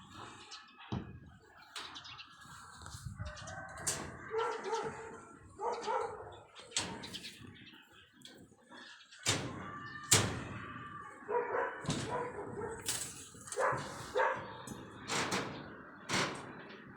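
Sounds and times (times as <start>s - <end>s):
dog barking and whimpering: 4.3s - 6.3s, 11.3s - 12.8s, 13.6s - 14.5s.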